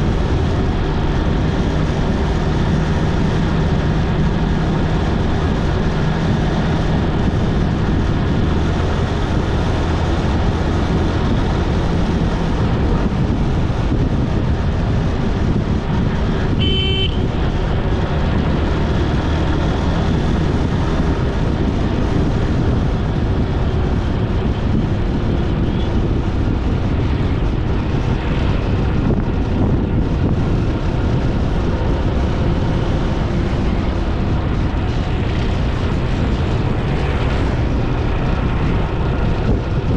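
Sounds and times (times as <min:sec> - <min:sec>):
road noise: 0:00.0 - 0:39.9
vehicle engine running: 0:00.0 - 0:39.9
short horn beep: 0:16.6 - 0:17.3.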